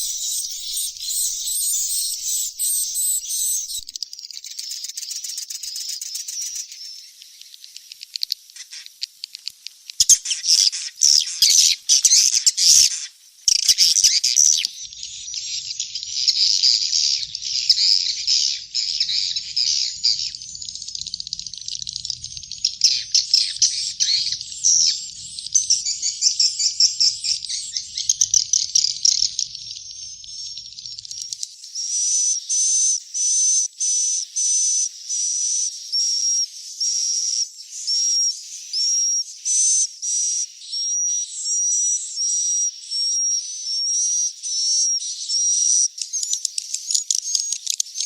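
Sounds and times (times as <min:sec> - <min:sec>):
bird chicks chittering: 0:00.0 - 0:32.6.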